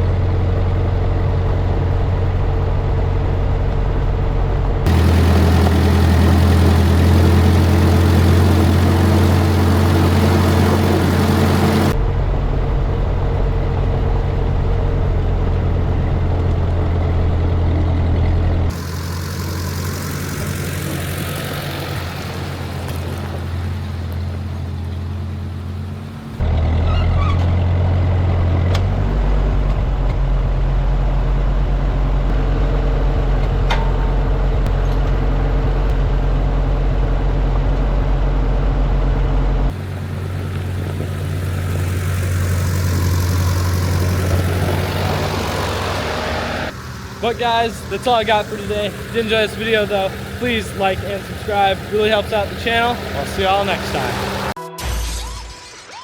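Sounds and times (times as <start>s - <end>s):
tractor engine humming: 0.0s - 54.6s.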